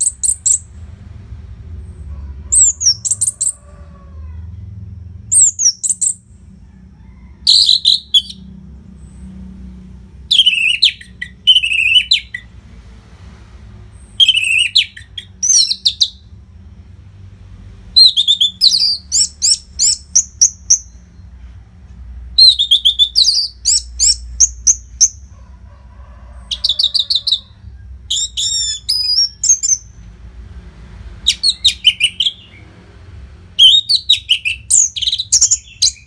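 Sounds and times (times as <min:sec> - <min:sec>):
thrush singing: 0:10.3 - 0:12.5, 0:14.1 - 0:16.3, 0:31.2 - 0:32.7.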